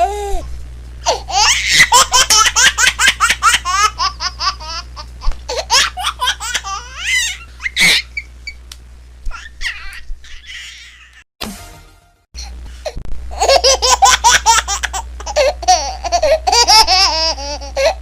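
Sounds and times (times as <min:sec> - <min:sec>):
baby laughing: 0:01.1 - 0:08.3, 0:09.3 - 0:11.2, 0:13.3 - 0:18.0.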